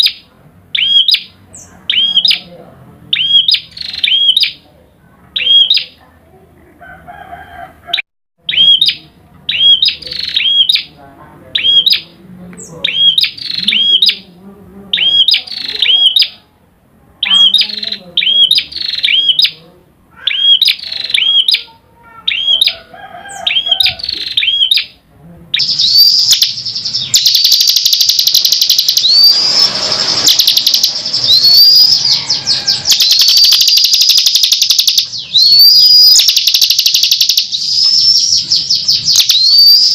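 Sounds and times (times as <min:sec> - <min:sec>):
bird song with rapid trills: 0:25.6 - 0:39.9.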